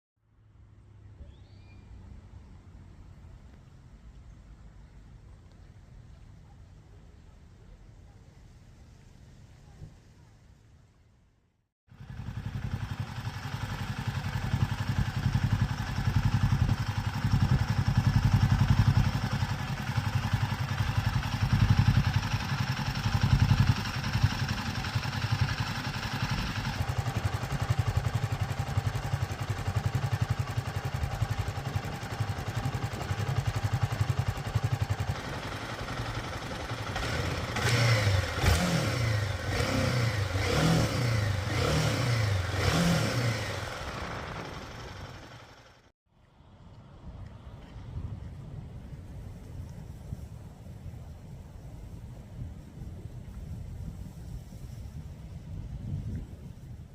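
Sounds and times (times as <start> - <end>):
motorcycle engine revving: 11.9 - 45.9.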